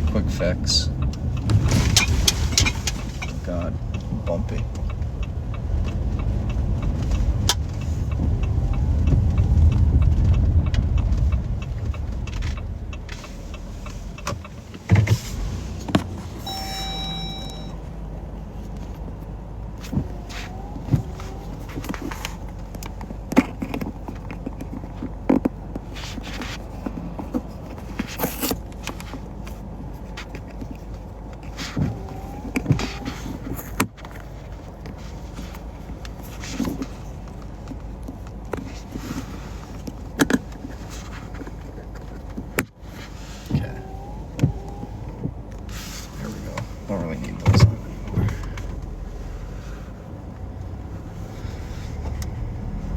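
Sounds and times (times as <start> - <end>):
car cabin road rumble: 0.0 - 52.9
short electronic beep: 16.4 - 17.8.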